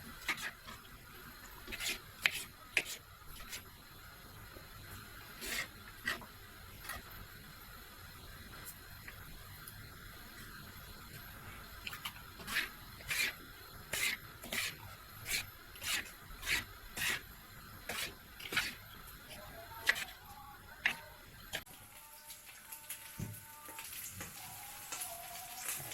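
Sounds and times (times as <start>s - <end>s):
rhythmic rubbing strokes: 0.0s - 0.9s, 1.6s - 3.7s, 5.4s - 7.1s, 11.8s - 21.6s.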